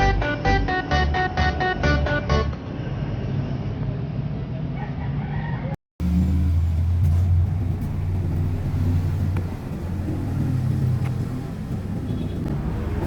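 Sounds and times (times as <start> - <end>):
low engine rumble: 6.0 - 13.0.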